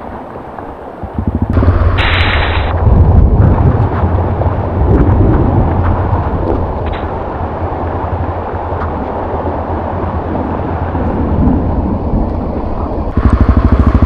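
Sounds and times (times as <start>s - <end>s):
motorbike engine revving: 1.0s - 3.7s, 13.1s - 14.0s
short hiss: 2.0s - 2.7s.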